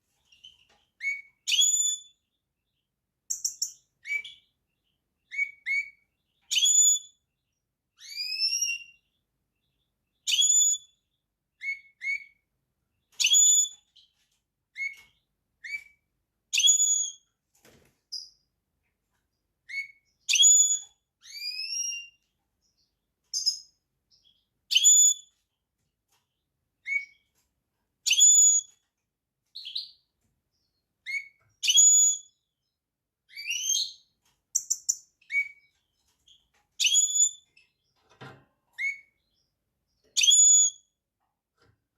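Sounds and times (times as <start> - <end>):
finch singing whistled notes: 0.3 - 2.3, 5.2 - 7.2, 8.0 - 9.2, 10.2 - 11.0, 13.1 - 14.0, 14.8 - 17.2, 19.7 - 25.4, 26.8 - 27.3, 28.0 - 28.8, 30.6 - 32.5, 33.3 - 35.7, 36.8 - 37.8, 38.8 - 40.9.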